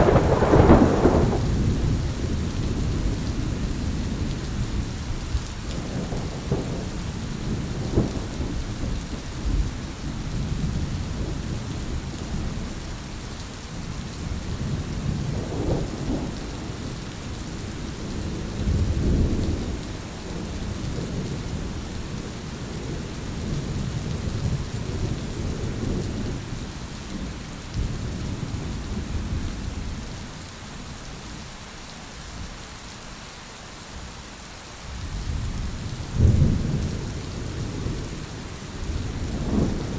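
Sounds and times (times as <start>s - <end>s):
rolling thunder rumbling: 0.0s - 12.8s, 14.2s - 30.2s, 35.0s - 39.9s
steady rain hiss: 0.0s - 39.9s.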